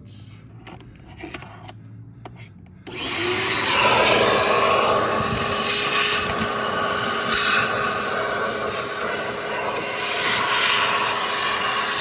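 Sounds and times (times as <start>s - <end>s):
vacuum cleaner running: 2.9s - 12.0s
vacuum sucking pellets: 2.9s - 12.0s.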